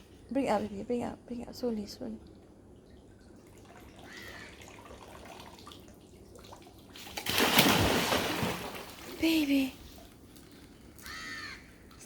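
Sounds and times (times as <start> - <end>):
water splashing: 2.1 - 10.6.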